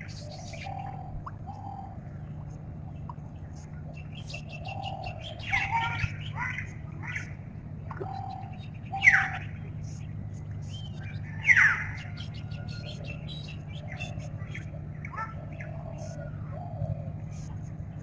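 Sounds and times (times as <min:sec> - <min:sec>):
birds chirping: 0:00.0 - 0:18.0
steady low hum: 0:00.0 - 0:18.0.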